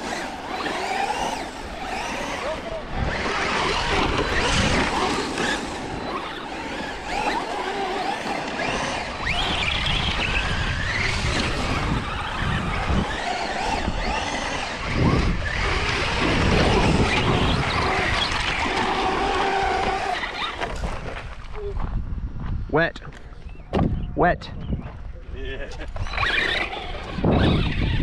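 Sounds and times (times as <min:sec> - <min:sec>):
tyres rumbling on ground: 0:00.0 - 0:21.4
electric motors whining: 0:00.0 - 0:21.5, 0:25.7 - 0:28.0.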